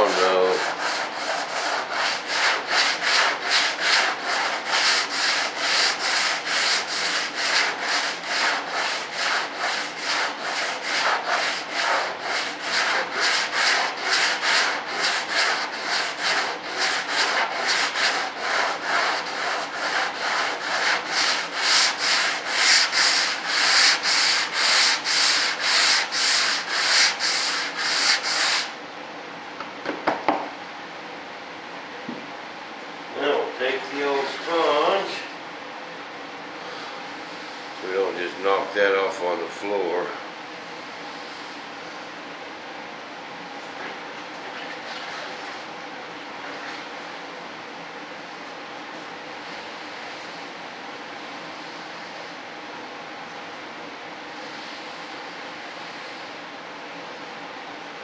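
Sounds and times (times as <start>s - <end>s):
sandpaper rubbing back and forth: 0.0s - 28.8s.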